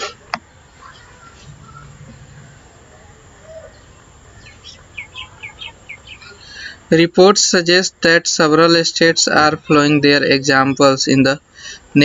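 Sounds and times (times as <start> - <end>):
faint background hum: 0.0 - 12.0
small bird chirping: 0.5 - 6.8.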